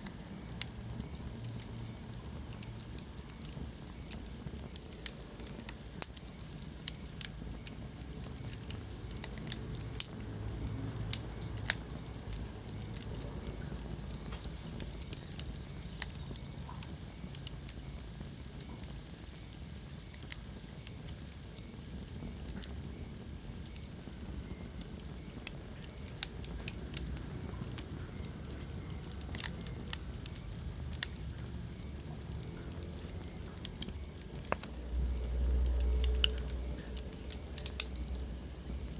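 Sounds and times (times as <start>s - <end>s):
fire crackling and popping: 0.0s - 38.9s
wood fire rumbling: 0.0s - 38.9s.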